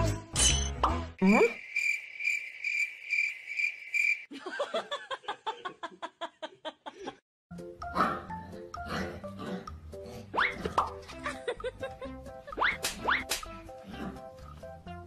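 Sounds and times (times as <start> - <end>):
cricket-like chirping: 1.2 - 4.3.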